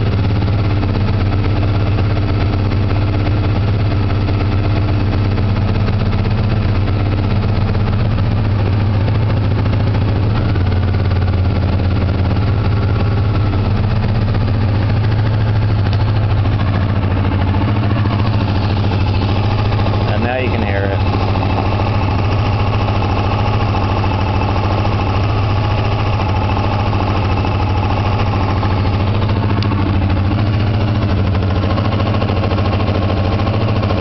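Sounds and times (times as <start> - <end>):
motorcycle engine fast idle: 0.0 - 34.0
light engine tapping: 8.5 - 34.0.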